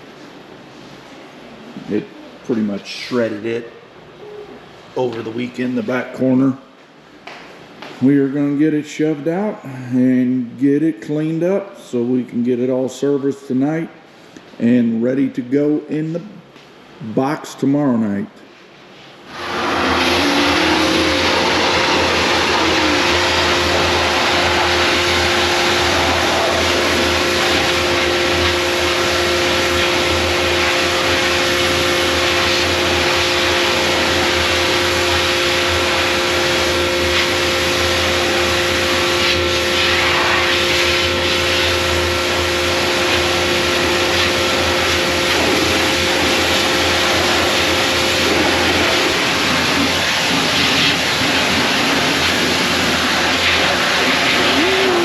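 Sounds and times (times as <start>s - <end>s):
pressure washer running: 19.2s - 55.0s.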